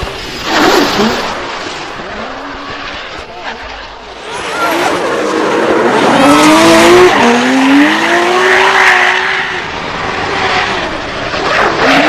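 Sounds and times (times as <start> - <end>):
car engine revving hard: 4.2 - 12.0.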